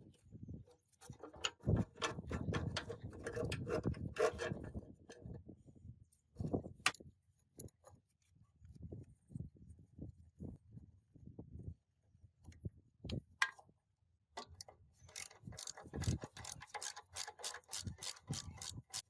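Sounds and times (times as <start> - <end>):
metal parts clattering and knocking: 14.4 - 19.0.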